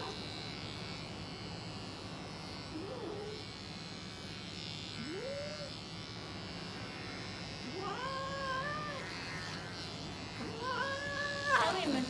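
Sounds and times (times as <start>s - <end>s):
electric hair clippers buzzing: 0.0s - 12.0s
cat crying and meowing: 7.7s - 9.4s, 10.4s - 12.0s.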